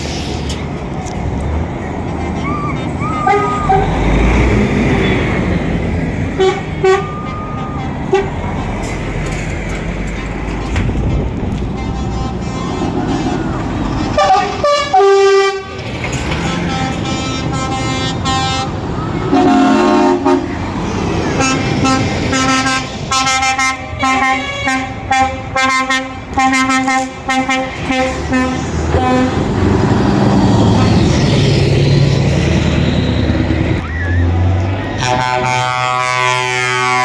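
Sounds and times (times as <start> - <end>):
truck engines running: 0.0 - 37.0
truck horns tooting: 1.8 - 31.4, 32.8 - 37.0.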